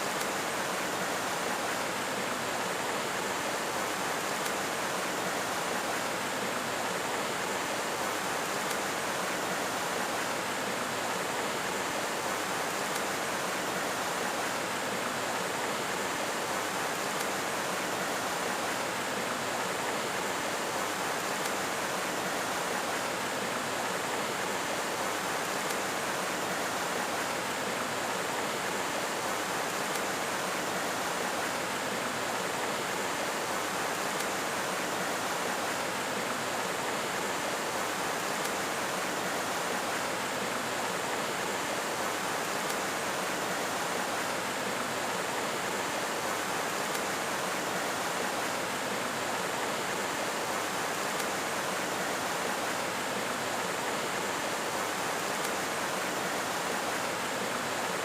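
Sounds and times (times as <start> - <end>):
flowing water rushing: 0.0 - 58.0.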